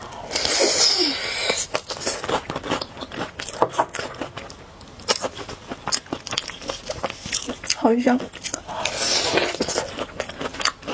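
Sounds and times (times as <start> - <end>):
chewing with wet mouth clicks: 1.7 - 10.9
noodle slurping: 8.7 - 10.0.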